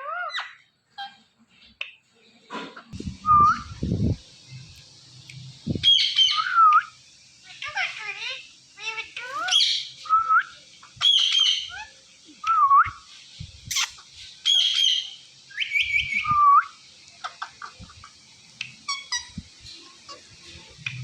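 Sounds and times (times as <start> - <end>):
parakeet whistled calls: 3.2 - 3.8, 5.8 - 11.9, 13.7 - 16.8, 18.8 - 19.4.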